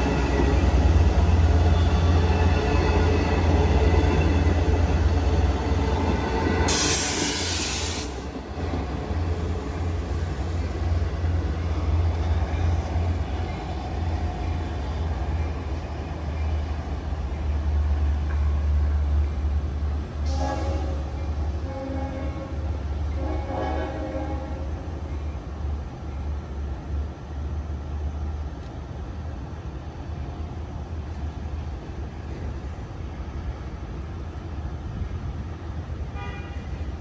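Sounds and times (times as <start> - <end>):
train rumbling: 0.0 - 37.0
loud hiss burst: 6.7 - 8.3.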